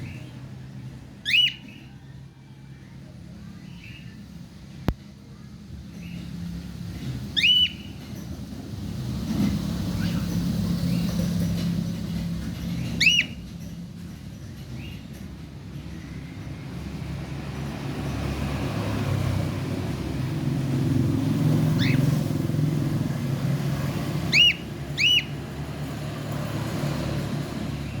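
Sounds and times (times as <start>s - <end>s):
passing motor vehicle rumble: 0.0s - 28.0s
cockatiel chirps: 1.2s - 1.9s, 7.4s - 7.9s, 13.0s - 13.4s, 21.8s - 22.1s, 24.3s - 25.4s.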